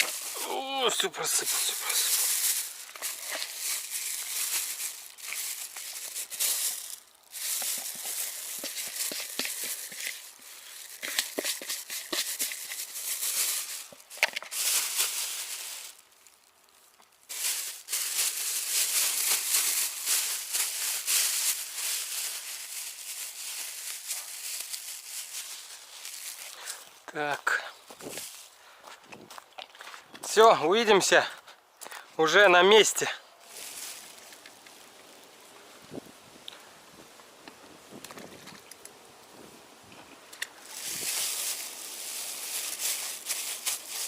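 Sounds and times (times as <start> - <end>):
material rustling and crinkling: 0.0 - 27.0, 33.4 - 35.2, 40.4 - 44.0.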